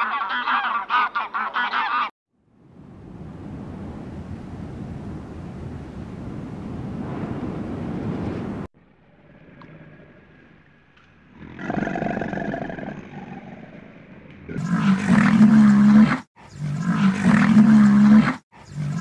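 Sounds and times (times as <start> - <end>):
drawn-out animal call: 0.0 - 2.1
harsh noisy animal sound: 11.3 - 19.0.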